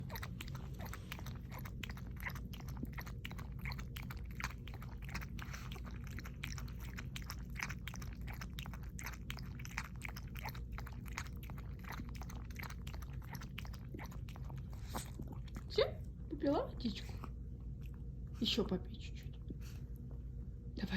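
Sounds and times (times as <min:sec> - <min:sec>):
dog lapping water: 0:00.0 - 0:16.0
low steady hum: 0:00.0 - 0:20.9.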